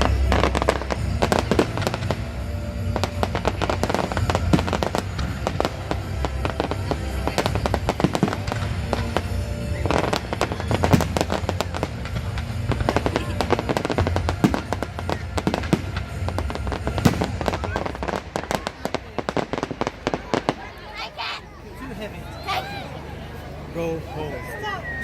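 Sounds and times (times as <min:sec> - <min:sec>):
music playing: 0:00.0 - 0:19.6
fireworks bangs and crackles: 0:00.0 - 0:21.1.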